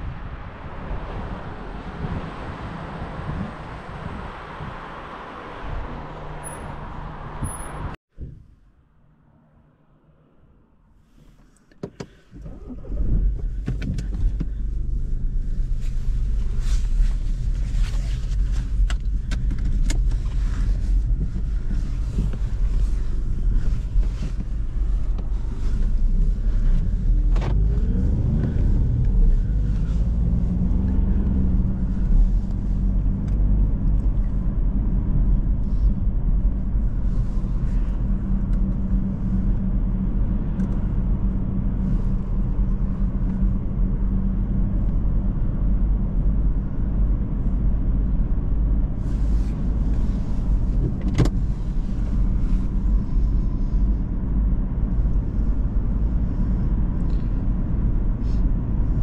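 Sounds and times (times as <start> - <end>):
road noise: 0.0 - 59.0
diesel car engine droning: 12.1 - 59.0.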